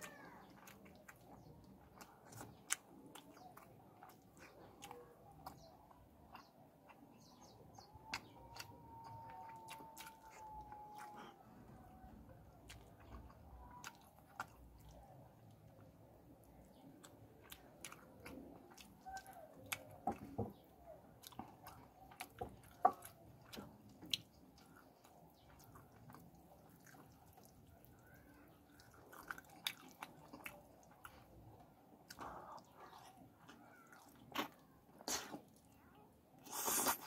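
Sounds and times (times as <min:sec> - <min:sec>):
wet chewing: 0:00.0 - 0:37.0
mouth clicks and smacks: 0:32.0 - 0:35.8, 0:36.4 - 0:37.0.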